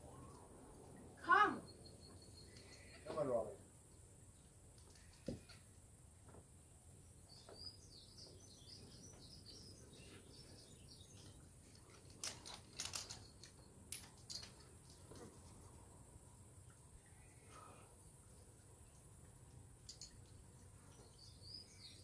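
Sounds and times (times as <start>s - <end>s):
faint bird chirping: 0.0s - 5.7s, 7.0s - 12.0s, 16.6s - 19.0s, 20.0s - 22.0s.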